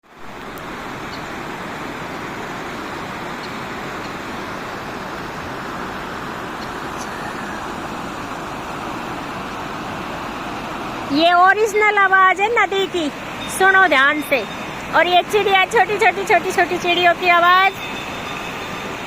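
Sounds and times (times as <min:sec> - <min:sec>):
river rushing over rocks: 0:00.1 - 0:19.0
faint bird chirps: 0:06.6 - 0:07.7.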